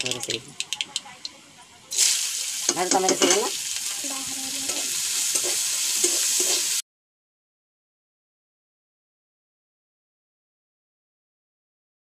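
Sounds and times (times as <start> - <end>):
onions sizzling in hot oil: 1.9 - 6.8
metal spatula stirring: 2.5 - 6.8.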